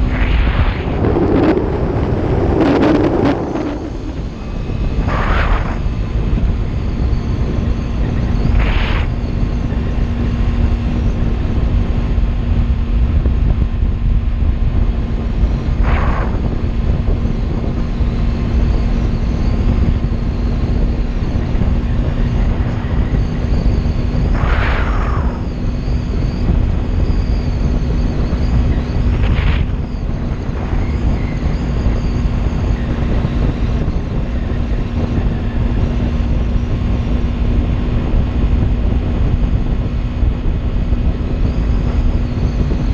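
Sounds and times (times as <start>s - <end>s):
brief whooshes: 0.0s - 5.8s
motorcycle engine cruising: 0.0s - 42.9s
wind rumble on microphone: 0.0s - 42.9s.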